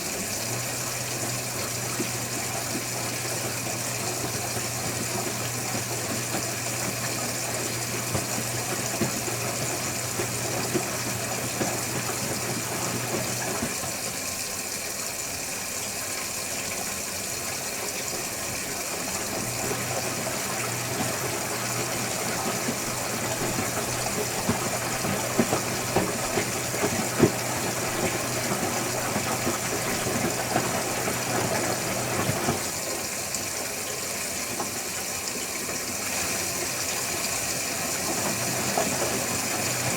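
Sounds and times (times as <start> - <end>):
water sloshing: 0.0 - 14.0, 18.2 - 32.8
washing machine motor hum: 0.0 - 39.9.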